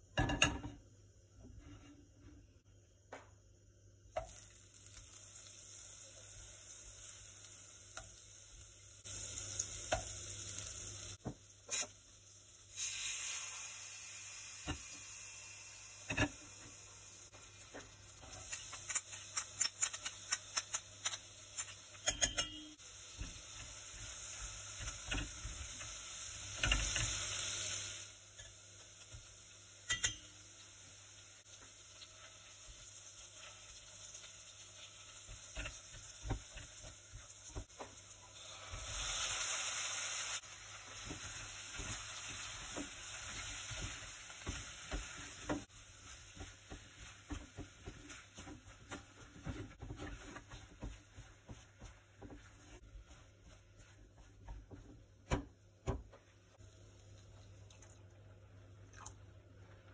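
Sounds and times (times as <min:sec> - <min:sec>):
onion frying: 0:04.0 - 0:58.6
butter sizzling in a pot: 0:04.1 - 0:55.5.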